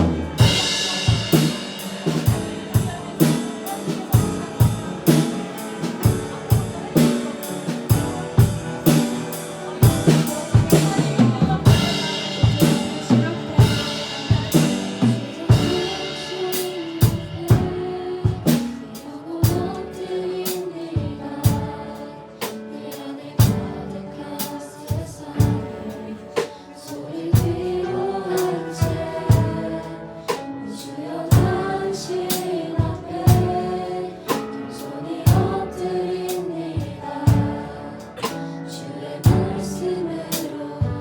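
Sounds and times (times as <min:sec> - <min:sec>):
drum kit beat: 0:00.0 - 0:26.0, 0:26.9 - 0:30.4, 0:31.3 - 0:38.4, 0:39.2 - 0:41.0
person singing: 0:00.0 - 0:41.0
piano chords: 0:00.0 - 0:41.0.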